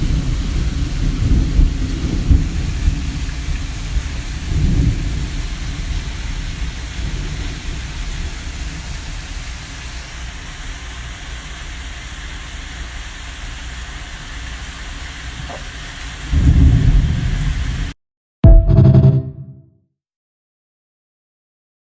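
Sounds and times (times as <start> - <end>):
thunder rumbling: 0.0 - 9.0, 16.3 - 17.8
steady rain: 0.0 - 18.0.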